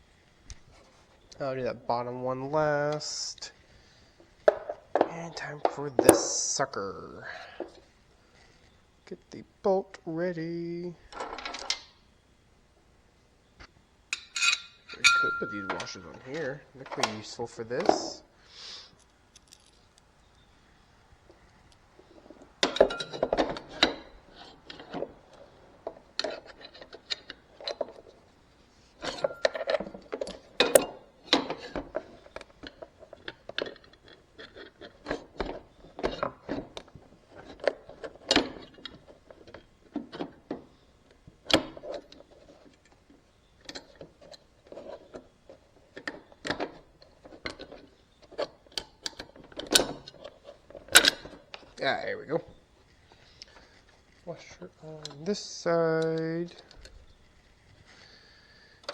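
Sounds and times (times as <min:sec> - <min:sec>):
metal tools clinking and knocking: 0:14.1 - 0:17.1, 0:22.6 - 0:24.1, 0:29.0 - 0:31.8, 0:49.1 - 0:51.4
sharp metal clacks: 0:30.7 - 0:31.0.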